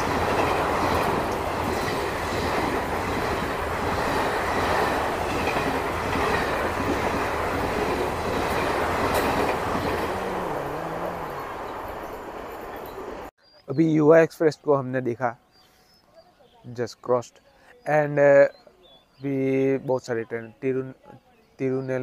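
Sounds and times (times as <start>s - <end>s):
train coaches running over rails: 0.0s - 13.3s.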